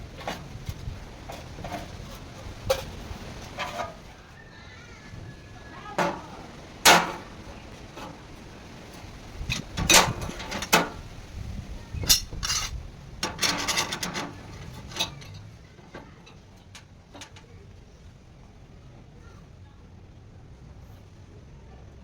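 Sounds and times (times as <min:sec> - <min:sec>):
metal parts knocking and clinking: 0:06.0 - 0:08.2, 0:09.5 - 0:11.0, 0:12.0 - 0:17.5.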